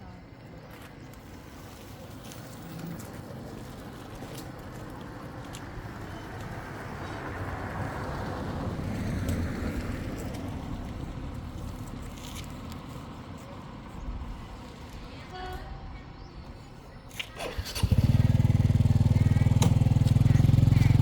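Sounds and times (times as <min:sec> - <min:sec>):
engine running: 0:17.2 - 0:21.0.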